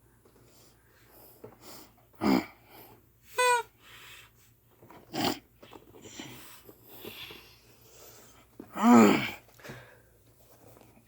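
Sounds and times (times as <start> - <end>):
person making creature noises: 3.4 - 3.7.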